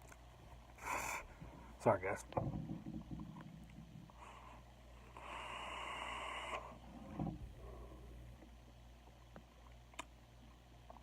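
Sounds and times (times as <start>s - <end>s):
faint low room hum: 0.0s - 11.0s
breathy vape hiss: 0.8s - 1.4s, 4.2s - 6.9s.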